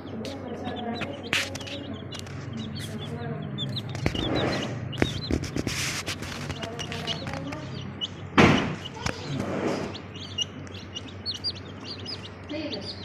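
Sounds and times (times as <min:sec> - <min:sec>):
baby chicks peeping: 0:00.0 - 0:13.0
loud thump: 0:08.4 - 0:08.9.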